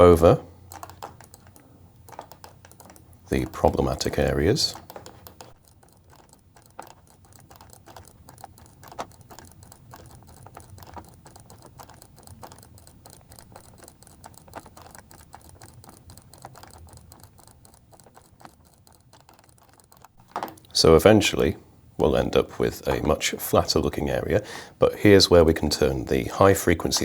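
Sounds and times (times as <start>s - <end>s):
mouse and keyboard clicking: 0.6s - 20.8s.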